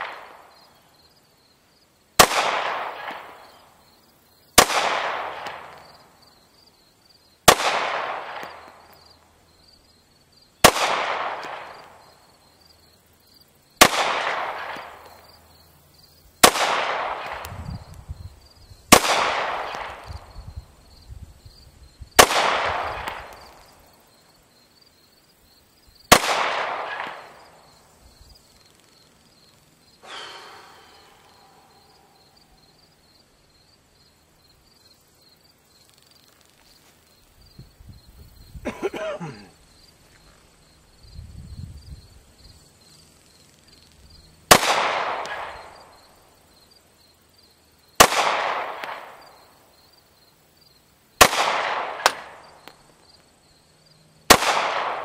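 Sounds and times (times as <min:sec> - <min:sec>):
pistol shots echoing: 0:02.2 - 0:03.6, 0:07.5 - 0:08.7, 0:10.6 - 0:12.0, 0:13.8 - 0:15.0, 0:16.4 - 0:17.4, 0:22.2 - 0:23.4, 0:26.1 - 0:27.6, 0:44.5 - 0:45.7, 0:48.0 - 0:49.2, 0:51.2 - 0:52.4, 0:54.3 - 0:55.0.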